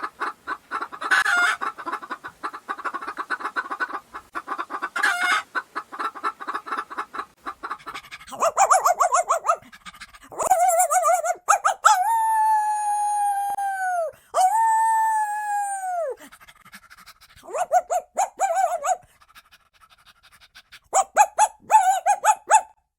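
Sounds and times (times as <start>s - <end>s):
child yipping like a dog: 8.3s - 9.7s, 10.3s - 16.3s, 17.4s - 19.1s, 20.9s - 22.8s
child howling like a dog: 10.4s - 16.2s.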